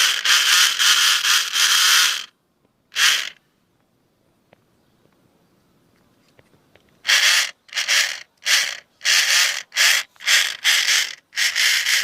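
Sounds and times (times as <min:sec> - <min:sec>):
small electric motor whirring: 0:00.0 - 0:02.3, 0:03.0 - 0:03.4, 0:07.1 - 0:12.0.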